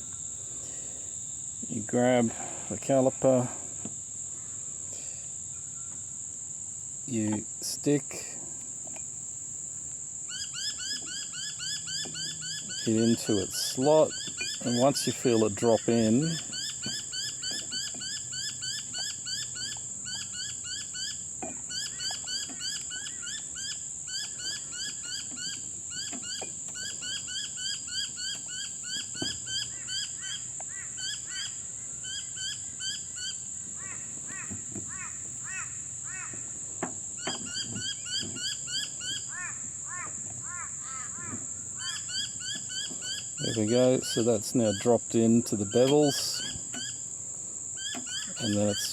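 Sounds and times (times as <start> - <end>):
birds chirping: 10.3 - 48.9.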